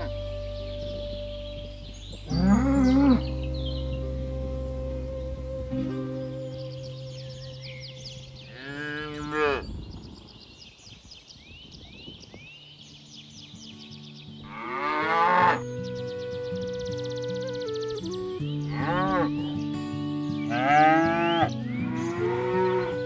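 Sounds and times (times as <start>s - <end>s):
background music with held notes: 0.0s - 8.7s, 14.5s - 23.0s
cattle mooing: 1.8s - 4.8s, 8.5s - 9.6s, 14.5s - 15.6s, 18.7s - 19.4s, 20.5s - 23.0s.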